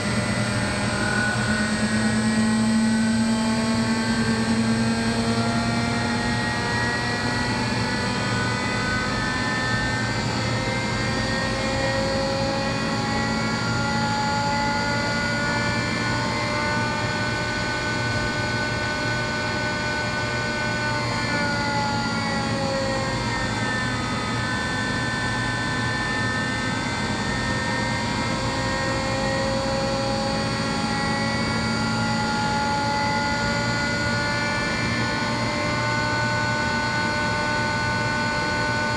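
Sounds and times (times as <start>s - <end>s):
air compressor droning: 0.0s - 38.9s.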